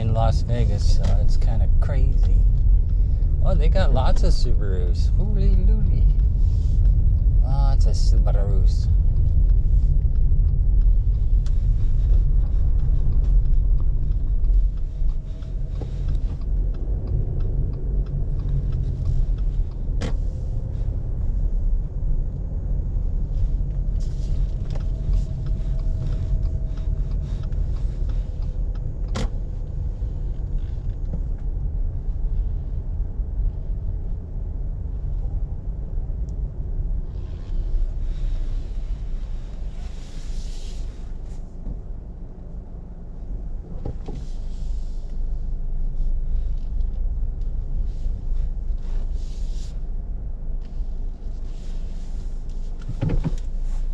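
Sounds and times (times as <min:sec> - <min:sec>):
car engine and road rumble: 0:00.0 - 0:53.9.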